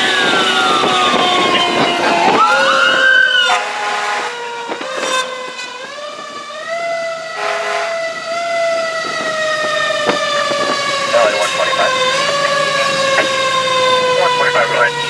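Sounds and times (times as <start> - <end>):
short siren blast: 0.0 - 6.5
fire engine siren wailing: 0.0 - 15.0.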